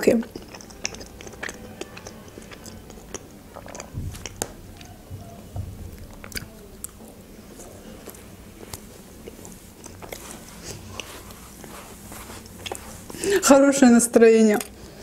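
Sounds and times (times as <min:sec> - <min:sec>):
chewing: 0:00.0 - 0:13.5, 0:14.5 - 0:15.0
faint low hum: 0:00.0 - 0:15.0
sharp mouth clicks: 0:00.2 - 0:04.9
soft low thumps: 0:03.8 - 0:07.4.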